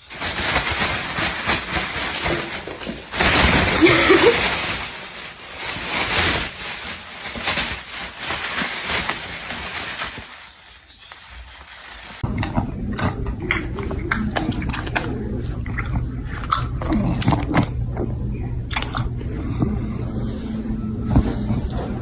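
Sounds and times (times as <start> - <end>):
steady low hum: 12.2 - 22.0.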